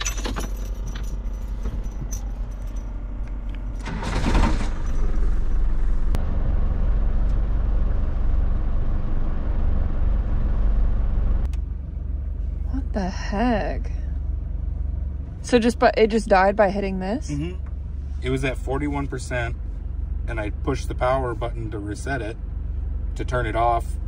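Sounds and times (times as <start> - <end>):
keys jangling: 0.0 - 4.0
car engine starting and idling: 0.0 - 24.0.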